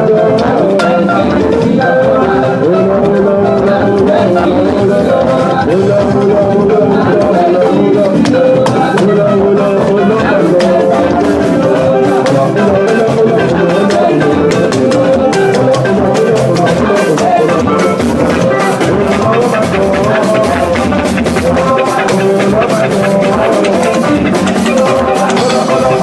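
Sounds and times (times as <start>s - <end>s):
church band music: 0.0s - 26.0s
drum kit beat: 0.0s - 26.0s
sustained pitched instruments: 0.6s - 26.0s
shaker percussion: 11.9s - 26.0s.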